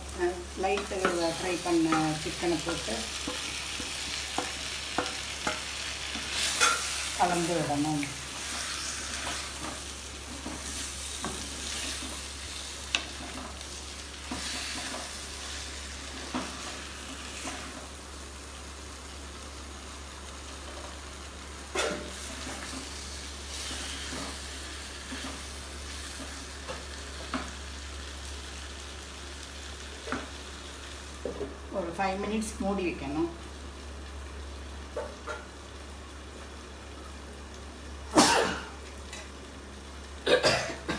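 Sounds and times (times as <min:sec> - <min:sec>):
chicken sizzling in sauce: 0:00.0 - 0:31.3.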